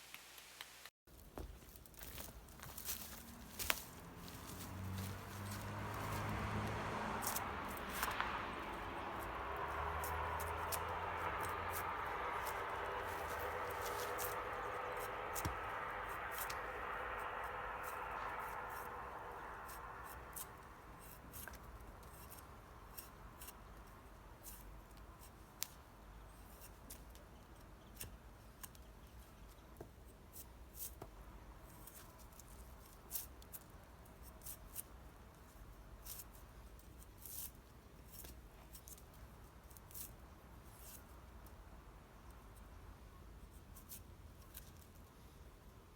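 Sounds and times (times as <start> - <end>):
low steady hum: 2.0 - 22.0.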